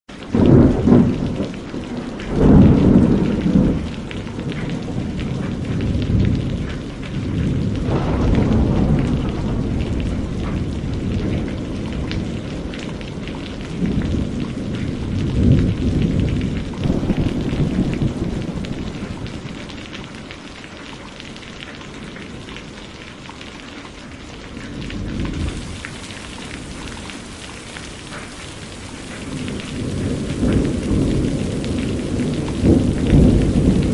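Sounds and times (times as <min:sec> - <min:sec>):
heavy rain falling: 0:00.1 - 0:33.9
deep low rumbles: 0:16.8 - 0:20.2.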